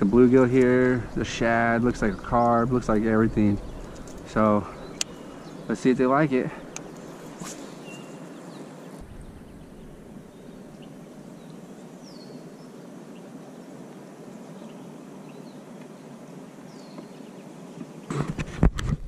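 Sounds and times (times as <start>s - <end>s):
outdoor background hiss: 0.0s - 19.0s
faint bird chirps: 3.3s - 18.1s.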